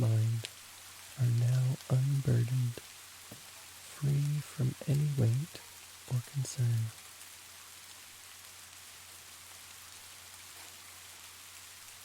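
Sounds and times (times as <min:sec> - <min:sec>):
soft steady rain: 0:00.0 - 0:12.0.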